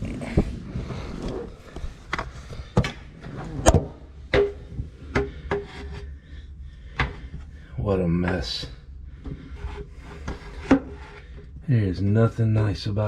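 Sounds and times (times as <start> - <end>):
tools knocking and clunking: 3.6 - 6.0.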